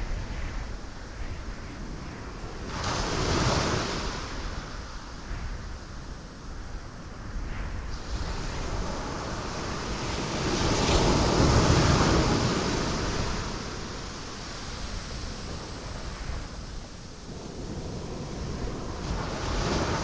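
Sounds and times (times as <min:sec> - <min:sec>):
ocean waves breaking on rocks: 0:08.0 - 0:20.0.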